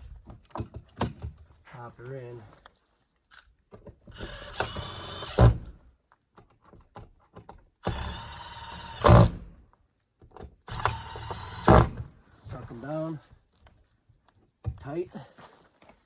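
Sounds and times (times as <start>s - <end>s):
cordless drill driving screws: 4.1s - 5.8s, 7.8s - 9.5s, 10.7s - 12.1s.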